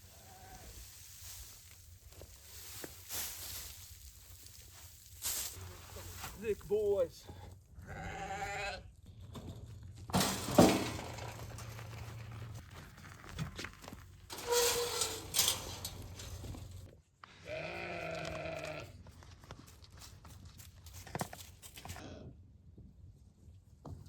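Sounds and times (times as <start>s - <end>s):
rustling crunching noise: 0.0s - 7.4s, 9.5s - 16.9s
sheep bleating: 7.8s - 8.9s, 17.4s - 19.0s.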